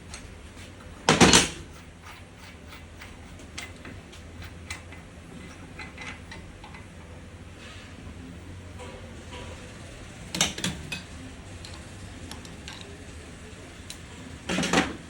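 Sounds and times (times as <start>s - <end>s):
small hard parts clicking: 1.1s - 6.9s.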